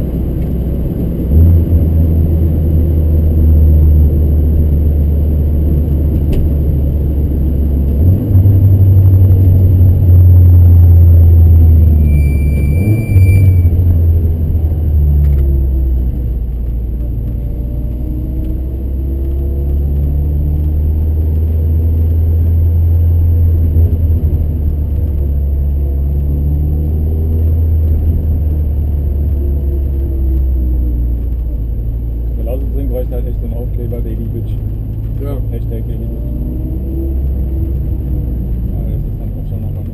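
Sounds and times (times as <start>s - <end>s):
car engine drone in cabin: 0.0s - 39.9s
brief high squeal: 12.0s - 13.8s.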